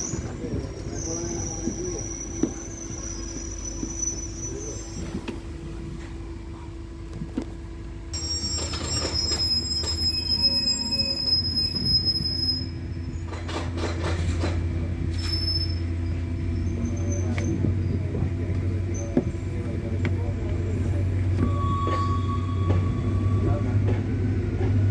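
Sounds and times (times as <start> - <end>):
train wheels squealing: 0.0 - 5.3, 8.2 - 17.9, 20.6 - 24.0
train rumbling: 0.0 - 24.9
track clacks: 13.2 - 15.4, 16.2 - 24.9.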